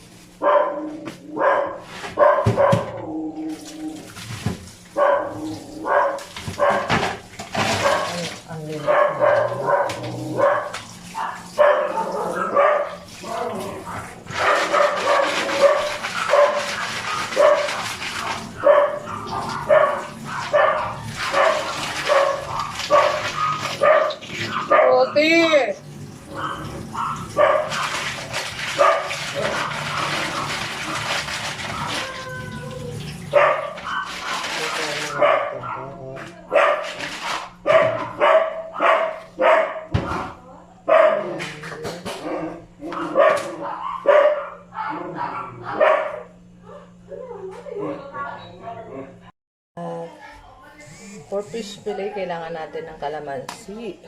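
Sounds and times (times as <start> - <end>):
dog barking: 0.4 - 3.0, 5.0 - 7.0, 7.6 - 8.2, 8.8 - 13.1, 13.8 - 25.4, 26.3 - 32.1, 33.3 - 41.4, 42.8 - 46.9.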